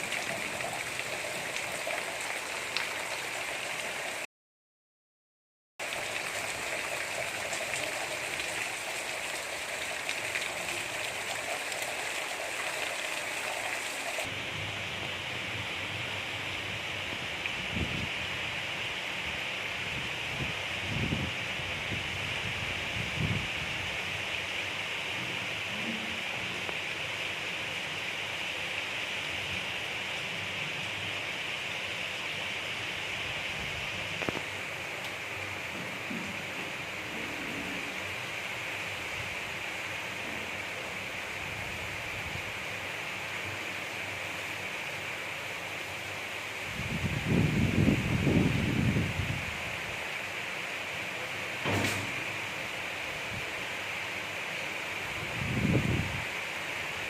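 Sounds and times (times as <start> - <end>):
gentle rain: 0.0 - 4.3, 5.8 - 57.0.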